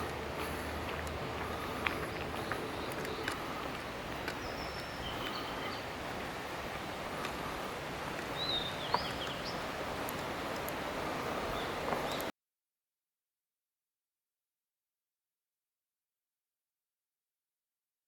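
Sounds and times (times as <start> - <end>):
mountain stream rushing: 0.0 - 12.3
bird chirps: 4.3 - 5.9, 8.4 - 9.6.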